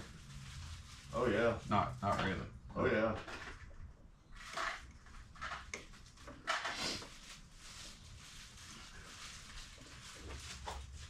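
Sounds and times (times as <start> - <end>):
soft rustles and light knocks: 4.5 - 11.0.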